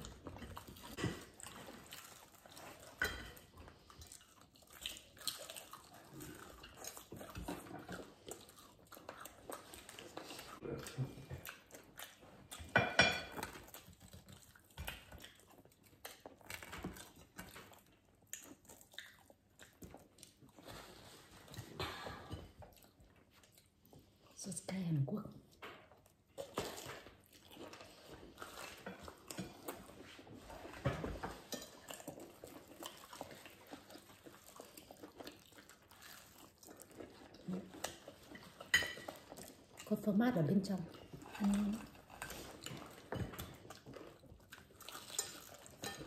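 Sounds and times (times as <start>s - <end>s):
people chewing crispy fried chicken: 0.0s - 24.8s, 25.5s - 46.0s.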